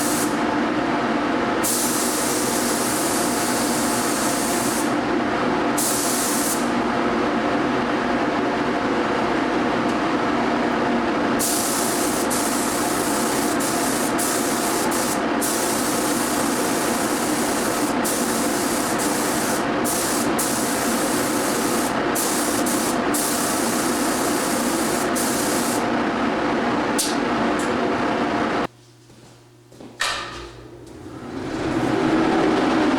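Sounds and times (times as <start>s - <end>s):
paint spray gun hissing: 0.0s - 0.4s, 1.6s - 5.0s, 5.8s - 6.7s, 11.4s - 25.8s
steady machine hum: 0.0s - 32.9s.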